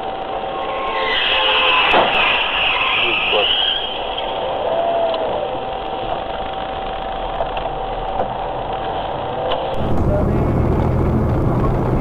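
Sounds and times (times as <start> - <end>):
faint steady whine: 0.0 - 12.0
car engine and road noise: 5.4 - 12.0.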